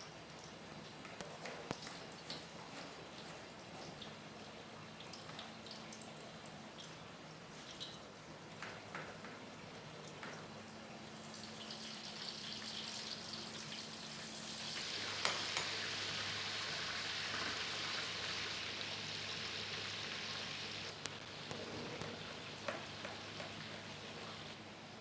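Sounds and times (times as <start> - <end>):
food sizzling in a pan: 8.6 - 24.6.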